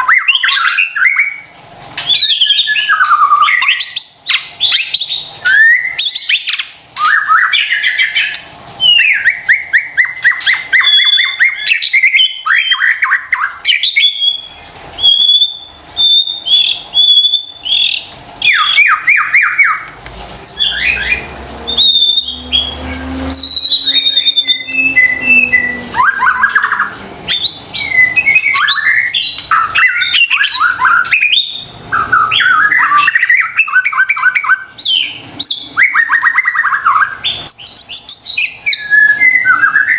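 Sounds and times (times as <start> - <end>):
songbird singing varied song: 20.4 - 31.6.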